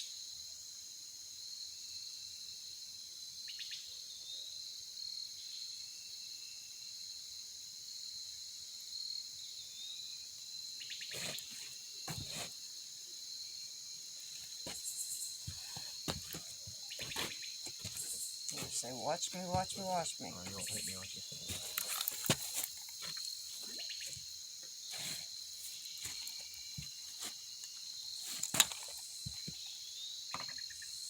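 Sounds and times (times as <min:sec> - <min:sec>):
insect chorus trilling: 0:00.0 - 0:31.0.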